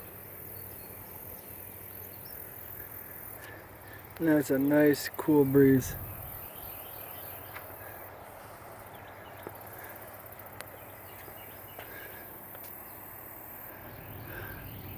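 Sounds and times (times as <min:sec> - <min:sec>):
steady hiss: 0:00.0 - 0:14.9
faint bird calls: 0:05.7 - 0:14.9.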